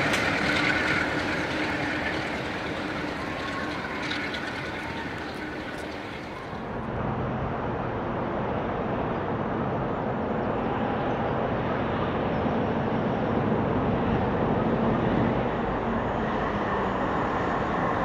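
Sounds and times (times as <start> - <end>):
distant train rumbling: 0.0 - 7.0.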